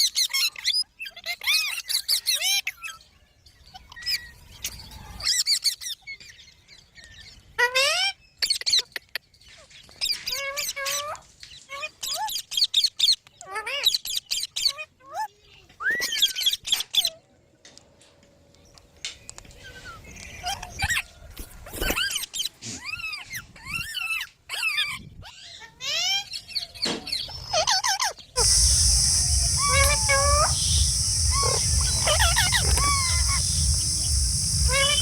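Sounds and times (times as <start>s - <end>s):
insects buzzing: 28.4s - 35.0s
low rumble: 28.4s - 35.0s.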